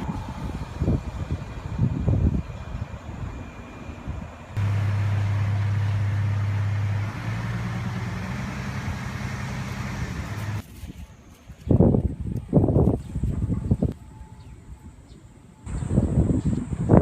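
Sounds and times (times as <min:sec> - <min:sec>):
train running hum: 0:00.0 - 0:10.6.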